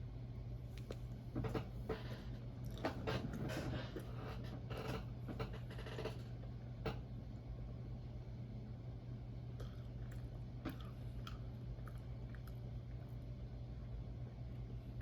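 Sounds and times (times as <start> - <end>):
steady low hum: 0.0 - 15.0
wet mouth chewing: 9.6 - 13.2.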